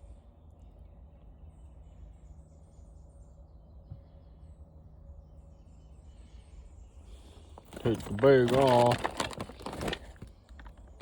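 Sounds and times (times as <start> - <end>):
faint bird chirping: 0.0 - 9.0
low background rumble: 0.0 - 11.0.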